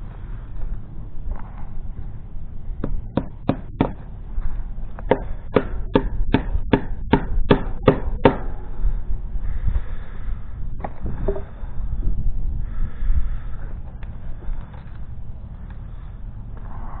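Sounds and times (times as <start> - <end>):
hammer strikes: 2.8 - 4.0, 5.1 - 8.5.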